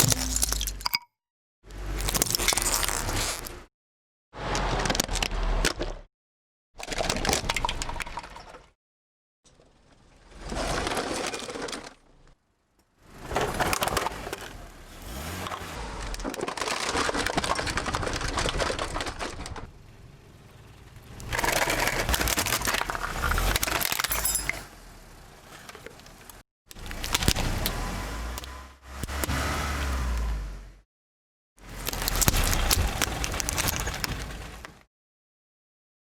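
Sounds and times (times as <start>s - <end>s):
things crushed under car tyre: 13.1s - 19.7s, 21.2s - 24.7s, 26.7s - 28.4s, 31.7s - 34.8s.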